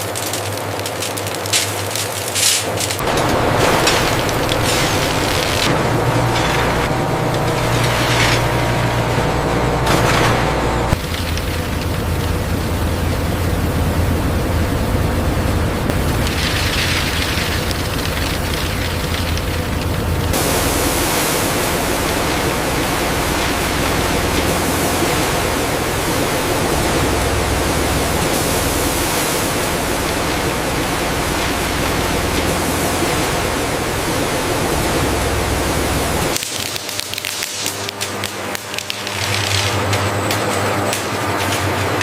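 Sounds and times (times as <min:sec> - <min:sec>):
factory machinery hissing: 0:00.0 - 0:42.0
low hum: 0:02.9 - 0:36.4.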